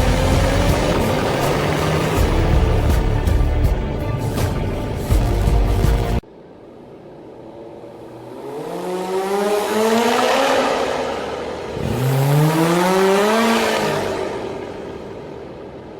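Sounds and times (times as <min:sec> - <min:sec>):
motorcycle engine accelerating hard: 0:00.0 - 0:04.0, 0:08.1 - 0:15.0.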